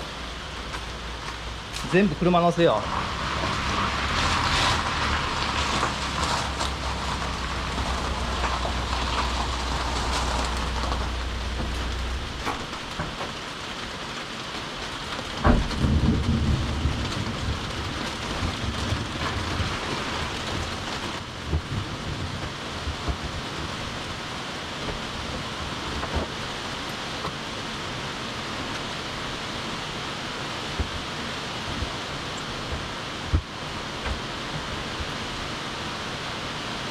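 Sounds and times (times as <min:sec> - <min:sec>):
steady rain hissing: 0:00.0 - 0:36.9
thunder crack and rumble: 0:02.5 - 0:14.0, 0:14.7 - 0:27.4, 0:30.6 - 0:35.1
low steady hum: 0:05.3 - 0:13.3.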